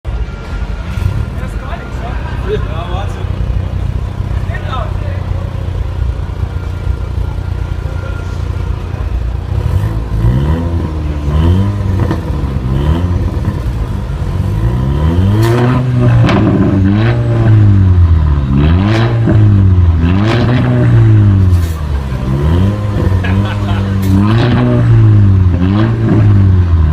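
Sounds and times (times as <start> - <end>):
car engine revving in blips: 9.3 - 26.9
exhaust cracks: 9.4 - 26.9.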